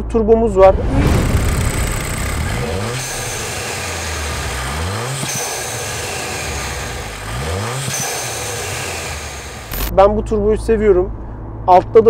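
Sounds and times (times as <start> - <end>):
car engine accelerating: 0.6 - 10.0.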